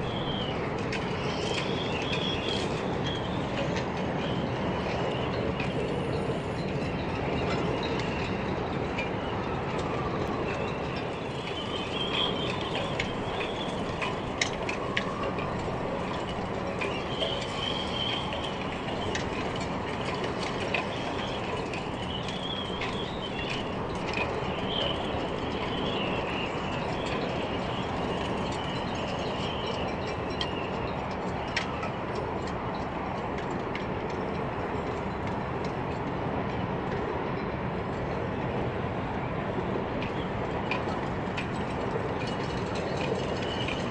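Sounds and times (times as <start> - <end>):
wavering high whine: 0.0 - 33.4
train rumbling over bridge: 0.0 - 43.9.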